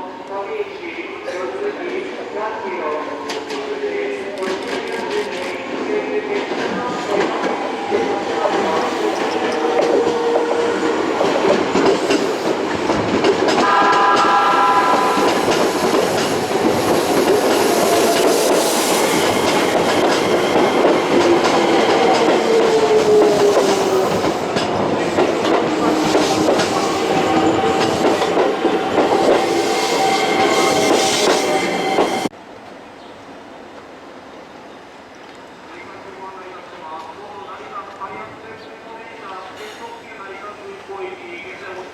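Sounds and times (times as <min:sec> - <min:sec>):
train wheels clacking over rails: 0:04.3 - 0:32.3
train horn: 0:13.6 - 0:16.5.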